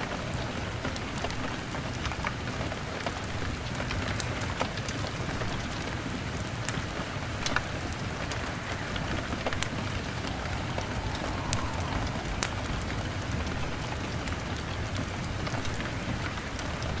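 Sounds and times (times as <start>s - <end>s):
rain drumming on a window: 0.0s - 9.2s
log fire crackling: 6.6s - 14.4s.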